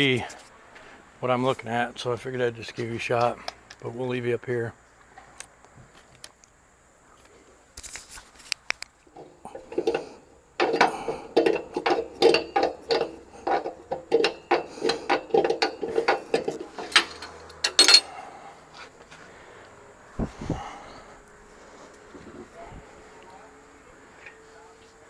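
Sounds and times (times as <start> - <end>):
metal ratcheting and scraping: 9.1 - 18.2.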